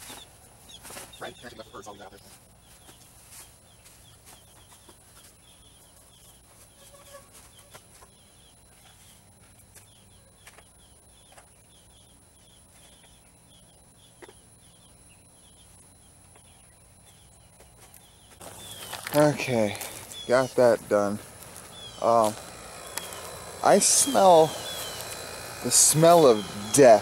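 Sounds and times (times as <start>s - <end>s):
bird chirping high: 9.8s - 27.0s
faint clicks: 22.3s - 23.3s.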